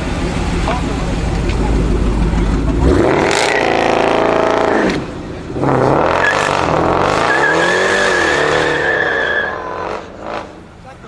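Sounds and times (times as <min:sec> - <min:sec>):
sports car engine revving: 0:00.0 - 0:10.8
tyre squeal: 0:06.1 - 0:09.9.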